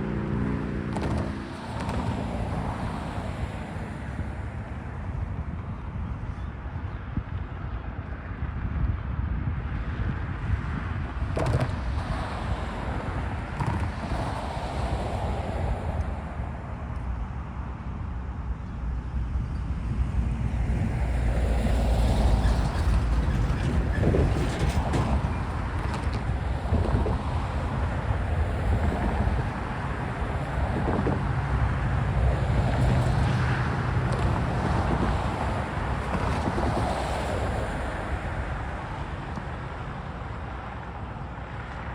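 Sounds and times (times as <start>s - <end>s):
wind buffeting microphone: 0.0s - 41.9s
freight train rumbling past: 19.5s - 38.2s.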